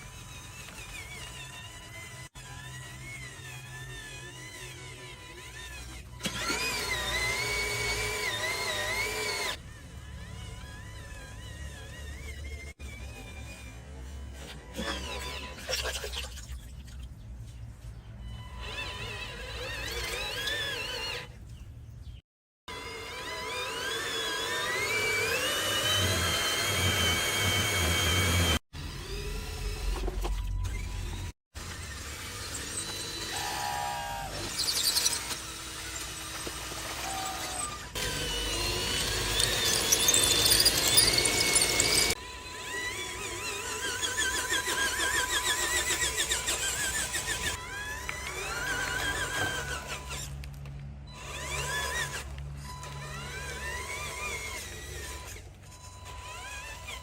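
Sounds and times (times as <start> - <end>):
small electric motor whining: 0.0 - 15.8, 17.9 - 21.6, 22.7 - 57.0
lower motor sound: 22.7 - 57.0.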